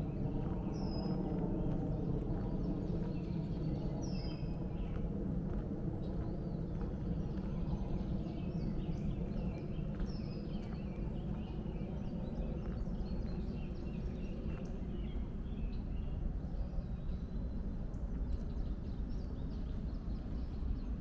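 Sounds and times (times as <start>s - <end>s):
footsteps on a trail: 0.0s - 15.4s
steady low rumble: 0.0s - 21.0s.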